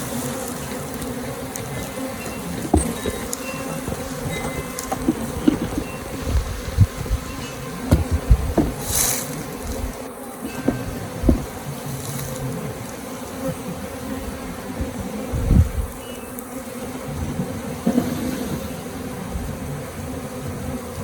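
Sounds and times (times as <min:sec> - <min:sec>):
bee swarm buzzing: 0:00.0 - 0:21.0
low thuds: 0:01.8 - 0:09.0, 0:10.6 - 0:11.6.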